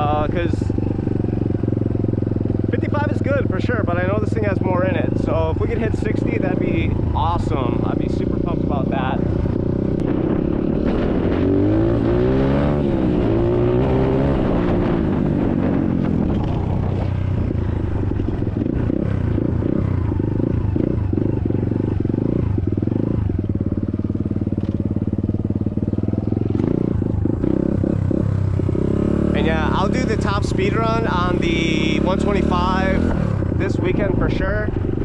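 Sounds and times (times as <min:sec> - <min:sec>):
dirt bike engine accelerating: 0:00.0 - 0:35.0.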